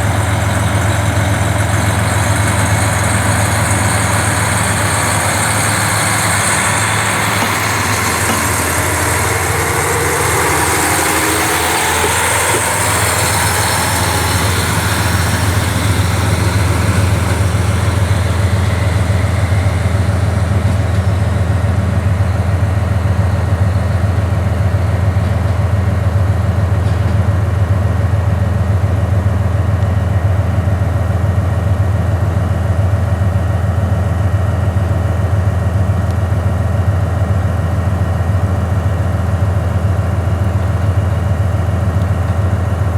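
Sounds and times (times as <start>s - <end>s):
hiss with shifting higher tones: 0.0s - 21.5s
diesel railcar engine idling: 0.0s - 42.9s.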